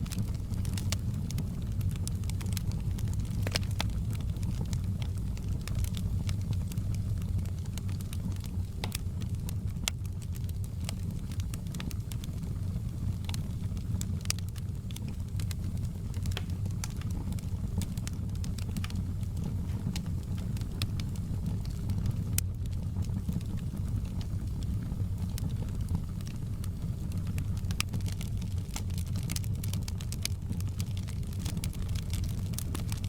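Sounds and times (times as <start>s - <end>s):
fire crackling and popping: 0.0s - 33.0s
low rumble of flames: 0.0s - 33.0s.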